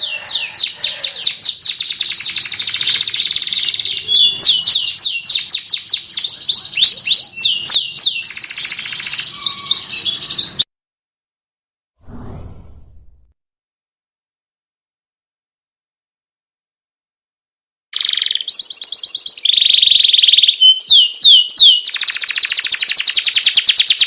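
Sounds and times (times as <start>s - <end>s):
songbird trills and whistles: 0.0s - 10.6s, 18.0s - 24.0s
low rustle: 12.0s - 13.3s.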